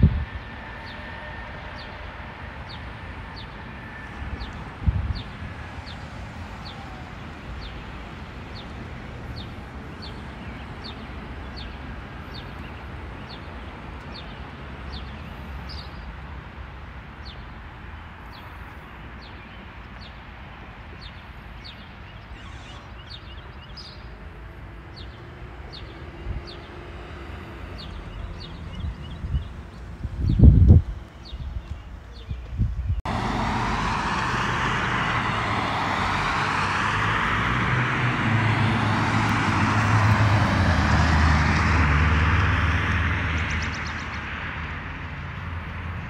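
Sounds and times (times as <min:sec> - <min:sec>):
bird chirping: 0:21.0 - 0:24.2.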